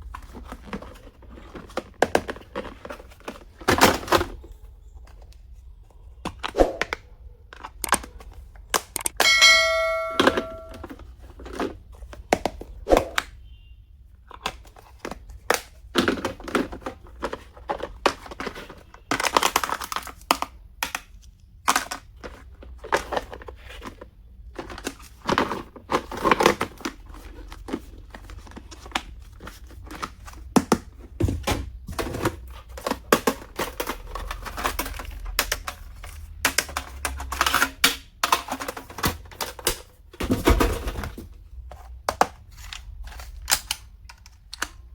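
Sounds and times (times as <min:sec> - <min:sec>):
small plastic items clicking: 0:06.2 - 0:09.2, 0:14.2 - 0:30.8, 0:31.9 - 0:39.9, 0:41.7 - 0:44.9
plastic wrapping crinkling: 0:14.2 - 0:30.6.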